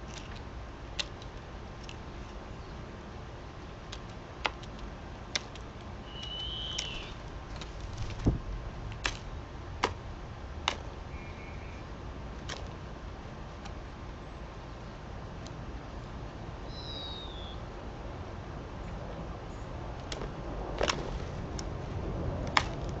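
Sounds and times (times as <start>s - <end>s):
steady background hiss: 0.0s - 23.0s
short bird call: 6.0s - 7.2s.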